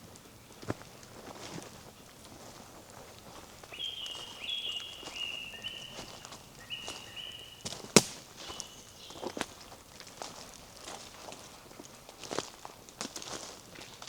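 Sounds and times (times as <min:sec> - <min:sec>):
footsteps on a forest path: 0:00.1 - 0:14.0
animal whistling: 0:03.7 - 0:09.4
sharp crack: 0:07.6 - 0:08.7.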